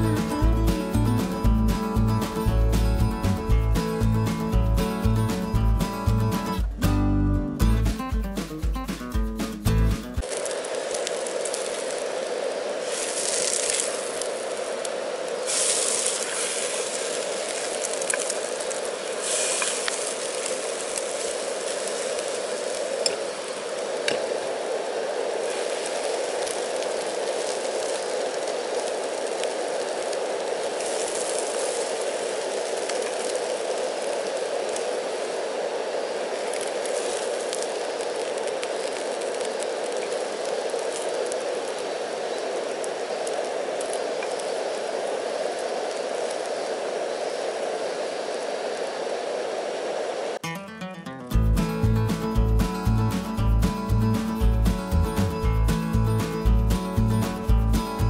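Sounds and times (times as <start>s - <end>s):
bread sizzling in a frying pan: 10.2s - 50.3s
gas stove hissing: 10.3s - 50.4s.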